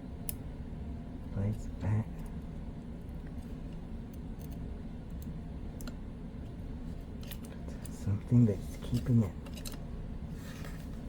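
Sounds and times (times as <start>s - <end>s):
steady low hum: 0.0s - 11.0s
light clicks of computer parts: 1.4s - 9.9s.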